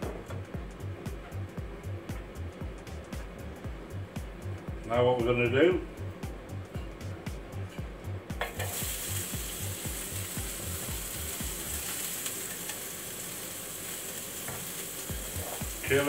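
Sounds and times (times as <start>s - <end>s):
chilli sizzling in frying pan: 8.3s - 16.0s.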